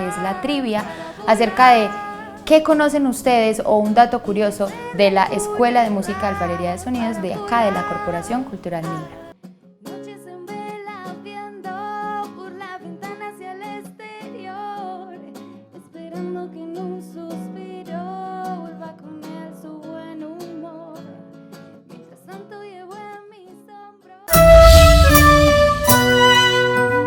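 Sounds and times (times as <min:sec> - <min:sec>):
song with acoustic guitar: 0:00.0 - 0:23.3, 0:24.3 - 0:27.0
loud music: 0:24.3 - 0:27.0.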